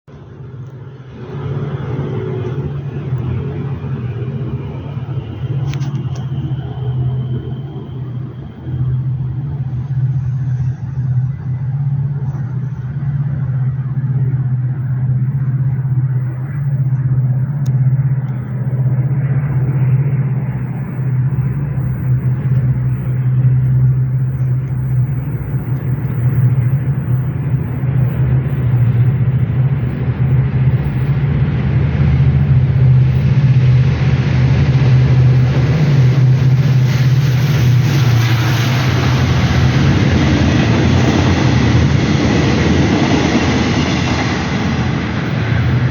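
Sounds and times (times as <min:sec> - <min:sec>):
passenger train rumbling past: 0:00.1 - 0:45.9.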